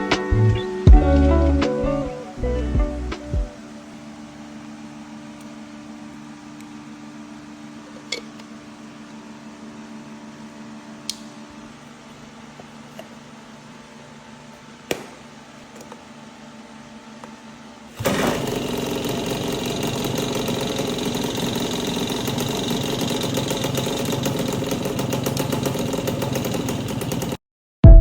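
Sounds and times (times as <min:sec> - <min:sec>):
two-stroke moped engine running: 0:18.0 - 0:27.4.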